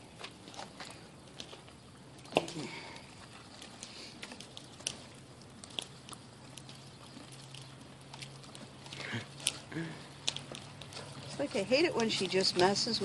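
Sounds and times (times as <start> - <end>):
animal biting and chewing: 0.0 - 13.0.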